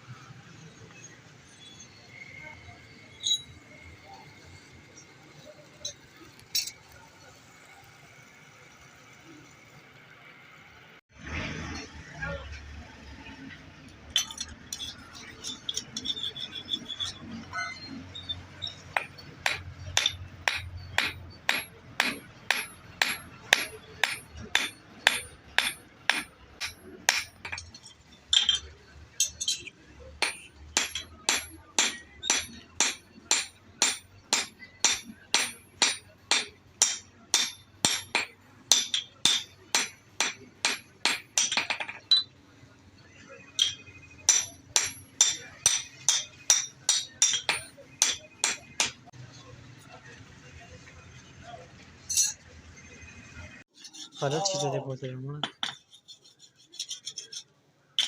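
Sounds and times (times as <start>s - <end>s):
hammer striking metal on anvil: 18.8s - 27.8s, 28.4s - 42.3s, 43.6s - 49.1s.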